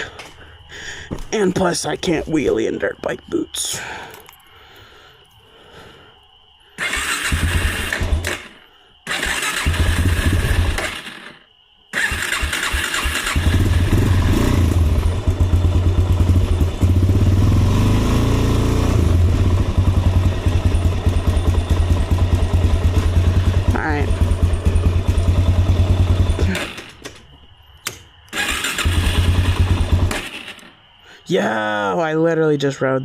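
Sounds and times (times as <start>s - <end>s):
quad bike engine starting: 6.8s - 30.8s.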